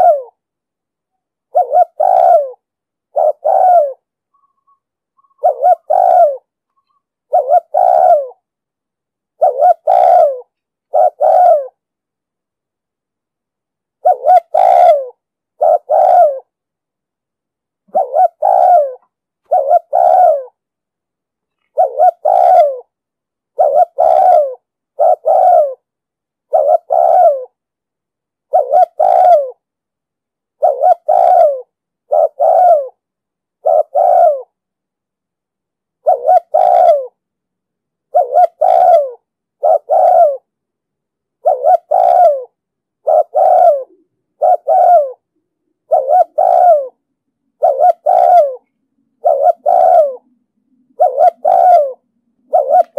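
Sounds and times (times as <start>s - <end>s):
dove cooing: 0.0s - 0.4s, 1.4s - 8.5s, 9.4s - 11.8s, 14.0s - 16.6s, 17.8s - 20.6s, 21.5s - 27.6s, 28.5s - 29.6s, 30.6s - 33.0s, 33.6s - 34.6s, 36.0s - 37.2s, 38.1s - 40.5s, 41.4s - 52.9s.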